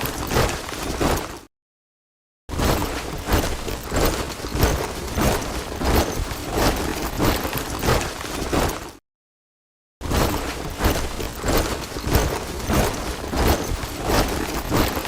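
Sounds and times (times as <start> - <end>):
soldiers marching in step: 2.7 - 9.0, 10.3 - 15.0.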